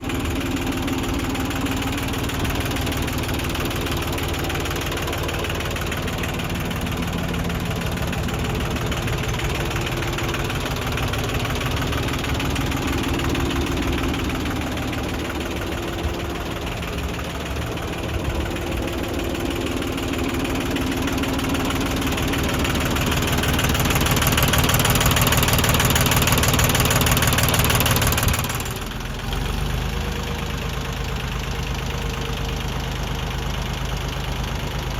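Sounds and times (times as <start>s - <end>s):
diesel tractor engine running: 0.0s - 34.9s.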